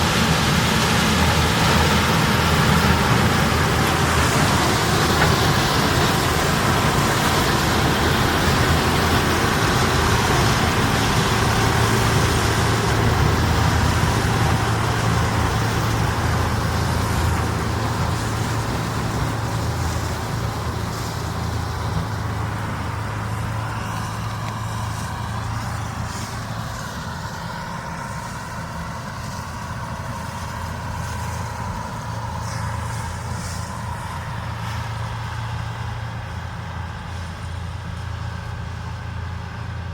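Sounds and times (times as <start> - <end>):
harvest machinery diesel engines: 0.0 - 39.9.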